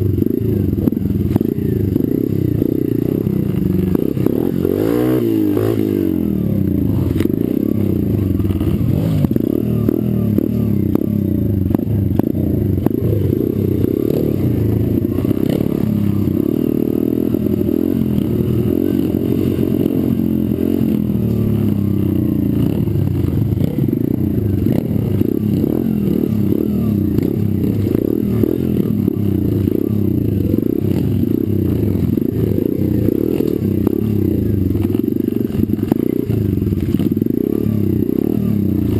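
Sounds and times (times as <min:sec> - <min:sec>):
small motorcycle engine revving: 0:00.0 - 0:38.9.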